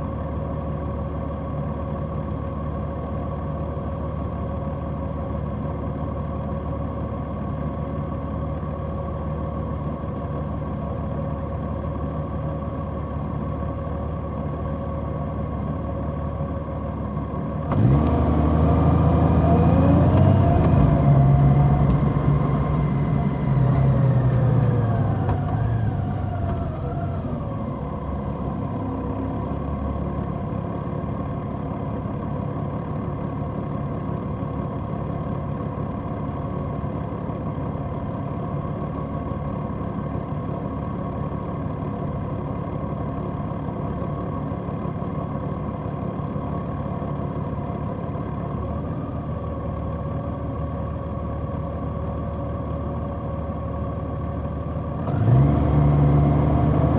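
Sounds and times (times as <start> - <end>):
motorcycle engine: 19.0 - 29.1.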